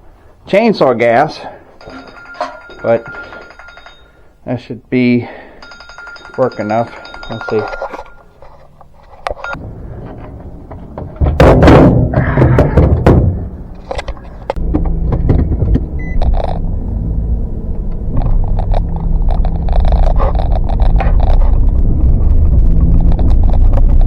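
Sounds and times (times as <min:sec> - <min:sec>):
knocks and scrapes: 0:07.0 - 0:16.7, 0:17.9 - 0:24.0
thunk: 0:11.0 - 0:13.5
vehicle engine starting and running: 0:13.0 - 0:24.0.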